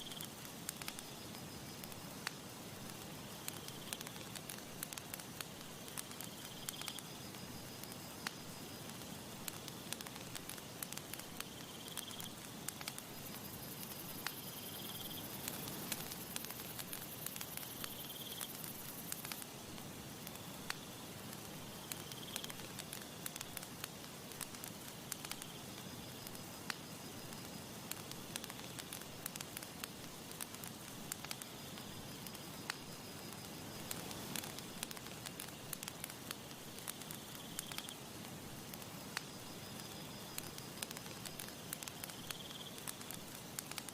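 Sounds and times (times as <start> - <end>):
breeze hiss: 0.0 - 43.9
campfire crackling and popping: 0.0 - 43.9.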